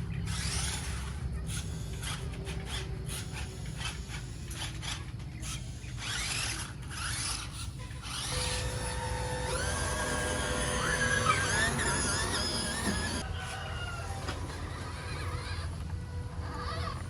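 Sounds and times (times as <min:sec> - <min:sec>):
rasping scraping noise: 0:00.0 - 0:13.3
steady low hum: 0:00.0 - 0:17.0.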